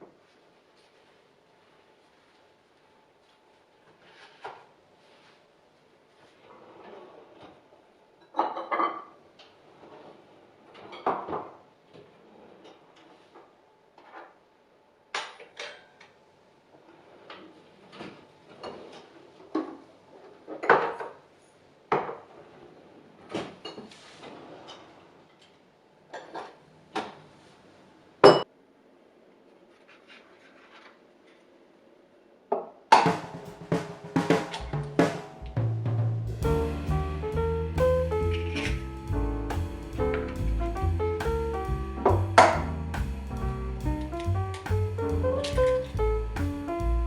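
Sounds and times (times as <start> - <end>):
music with bass and drums: 33.1 - 47.0.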